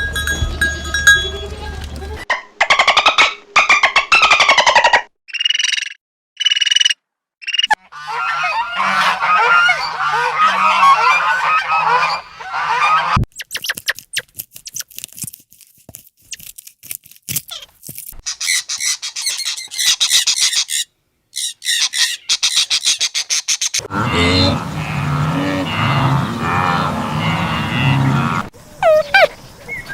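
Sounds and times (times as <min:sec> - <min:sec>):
birds honking: 0:07.7 - 0:13.2, 0:23.8 - 0:29.3.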